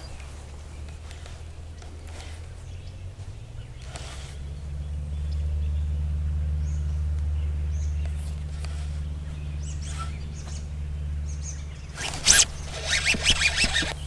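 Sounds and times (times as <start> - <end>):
loud rustle of fishing rod: 0.0 - 4.5, 8.2 - 9.1, 11.9 - 14.0
birds chirping: 0.0 - 14.0.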